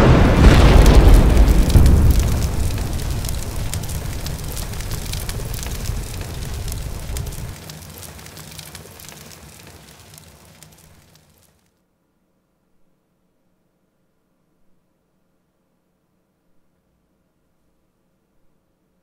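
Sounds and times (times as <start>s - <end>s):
low rumble: 0.0s - 7.6s
fire crackling: 0.0s - 11.7s.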